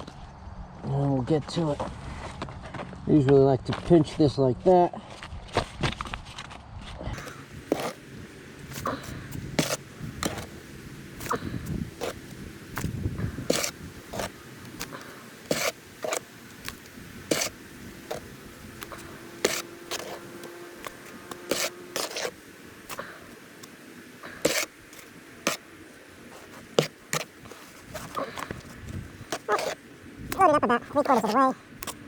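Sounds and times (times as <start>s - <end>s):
tool scraping in mixing pan: 7.2s - 10.6s, 11.2s - 29.9s.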